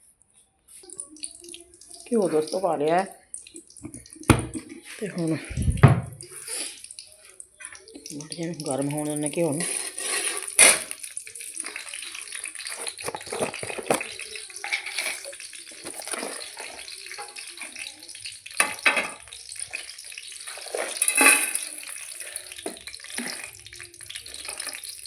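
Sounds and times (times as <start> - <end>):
ghee hissing in a pan: 6.2 - 7.4, 8.4 - 25.0
kitchen utensils clattering: 8.9 - 25.0.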